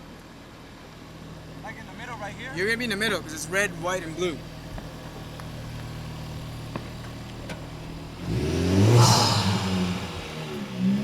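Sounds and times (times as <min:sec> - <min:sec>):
car engine revving: 0:02.8 - 0:11.0.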